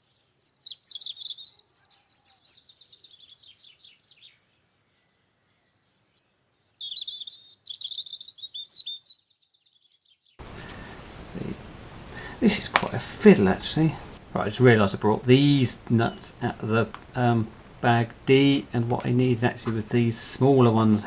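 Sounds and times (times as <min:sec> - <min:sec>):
songbird chirping and trilling: 0:00.0 - 0:10.5, 0:14.9 - 0:21.0.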